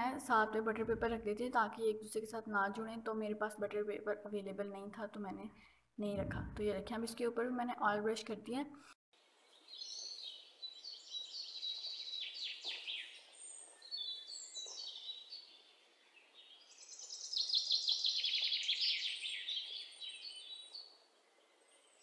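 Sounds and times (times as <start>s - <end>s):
birds chirping and trilling: 9.4s - 22.0s.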